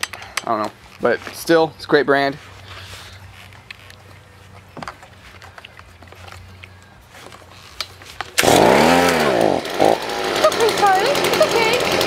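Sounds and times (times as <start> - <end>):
leaf blower engine running: 6.2 - 12.0
recoil starter pull: 8.4 - 12.0.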